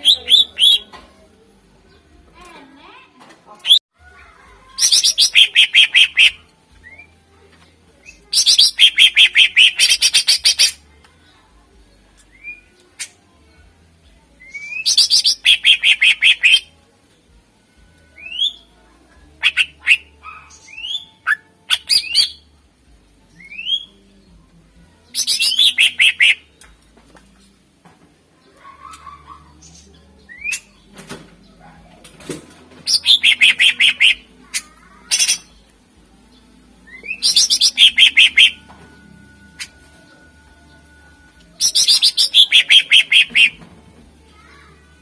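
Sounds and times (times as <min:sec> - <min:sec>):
bird rapid high notes: 0:32.9 - 0:34.2, 0:37.0 - 0:38.6, 0:41.6 - 0:43.6.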